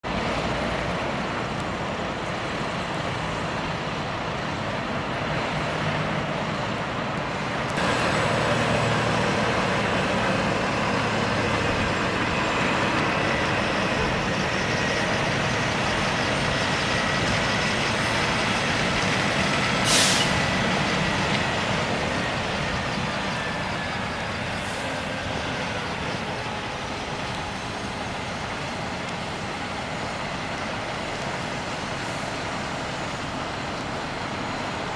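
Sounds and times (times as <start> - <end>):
road noise: 0.0 - 34.9
truck engine at low speed: 0.0 - 34.9
air brake hiss: 19.8 - 20.5.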